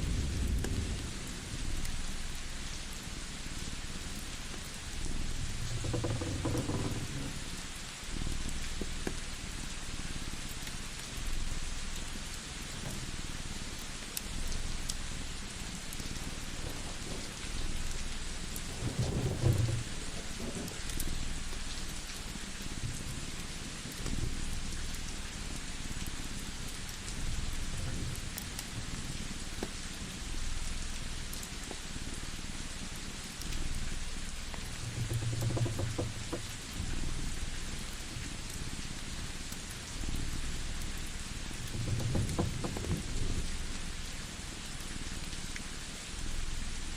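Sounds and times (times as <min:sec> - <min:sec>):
low rumbles: 0:00.0 - 0:08.9, 0:12.6 - 0:22.1, 0:33.8 - 0:38.2, 0:40.0 - 0:44.6
rain-like hiss: 0:00.0 - 0:46.9
wood fire crackles: 0:00.0 - 0:46.9
low rumble: 0:15.4 - 0:21.4.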